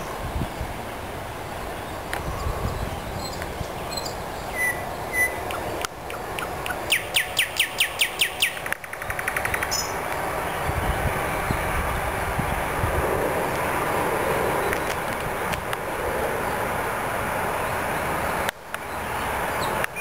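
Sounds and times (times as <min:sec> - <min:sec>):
songbird singing: 0:00.0 - 0:12.7, 0:17.5 - 0:20.0
background hiss: 0:00.0 - 0:20.0.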